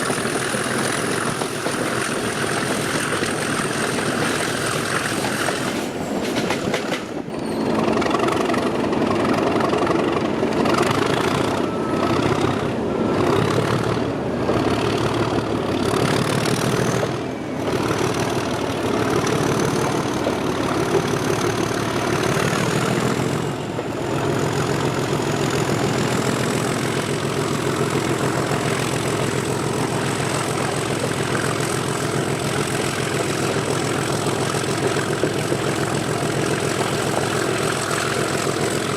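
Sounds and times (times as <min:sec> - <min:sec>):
locomotive diesel engine running: 0:00.0 - 0:38.9.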